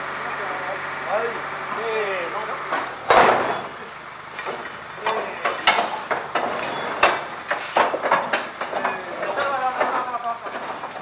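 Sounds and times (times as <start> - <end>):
metallic knocks and clanks: 4.4 - 11.0.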